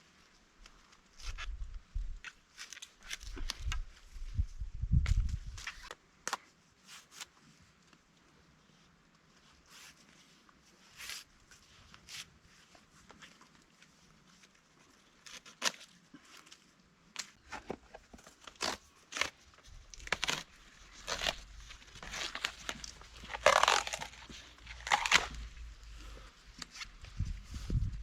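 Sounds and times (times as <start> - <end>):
dry leaves and twigs crunching: 17.5 - 25.9.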